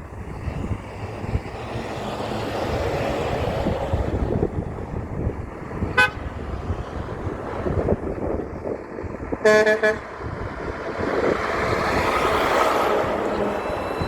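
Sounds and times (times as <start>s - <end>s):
truck driving past: 0.0s - 14.0s
truck horn toot: 5.9s - 6.3s, 9.4s - 10.2s.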